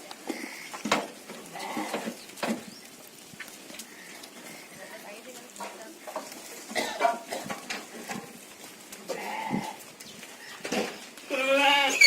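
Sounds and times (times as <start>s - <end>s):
sheep bleating: 1.4s - 2.1s, 9.1s - 9.9s, 11.2s - 12.0s.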